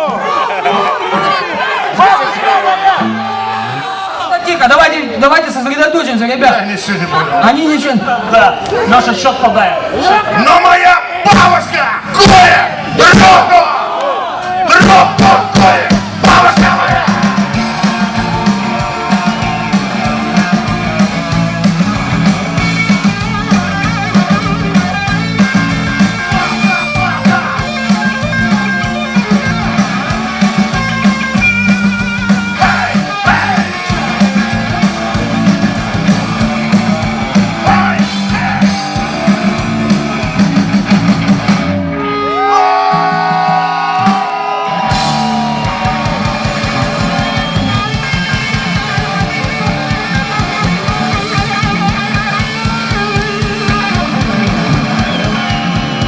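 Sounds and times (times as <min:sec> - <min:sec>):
rock band playing live: 0:00.0 - 0:06.0, 0:11.1 - 0:13.6, 0:14.3 - 0:56.0
electric guitar: 0:03.0 - 0:04.3, 0:14.4 - 0:56.0
repeating bass line: 0:14.8 - 0:42.5, 0:43.2 - 0:56.0.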